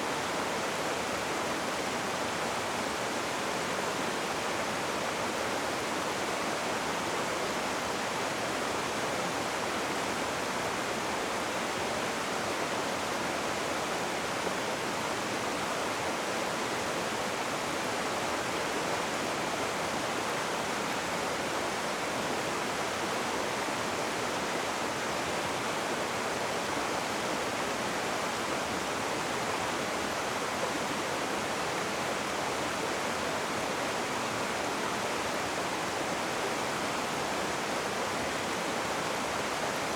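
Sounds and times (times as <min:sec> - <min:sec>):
rushing river water: 0:00.0 - 0:39.9.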